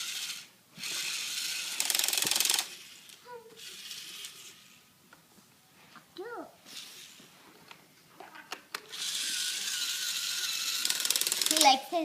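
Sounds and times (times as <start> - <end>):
toy drill ratcheting clatter: 0.0 - 4.8, 8.9 - 11.8.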